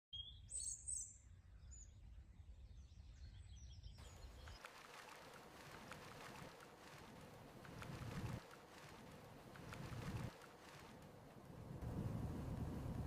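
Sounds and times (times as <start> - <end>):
bird chirps: 0.1 - 4.7.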